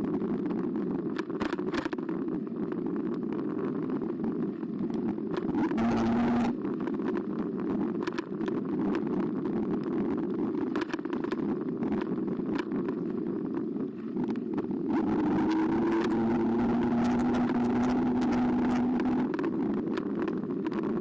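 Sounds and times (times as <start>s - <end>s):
bike tyres rumbling: 0.0s - 21.0s
electric motor whine: 5.5s - 6.6s, 14.9s - 19.3s.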